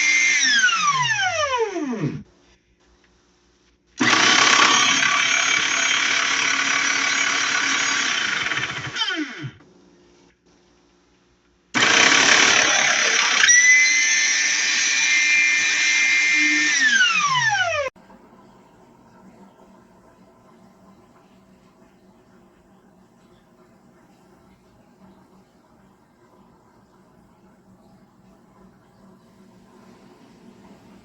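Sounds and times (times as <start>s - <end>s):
meat grinder motor running: 0.0s - 2.2s, 4.0s - 9.6s, 11.8s - 17.9s
motor winding down whine: 0.0s - 2.2s, 4.0s - 9.6s, 11.8s - 17.9s.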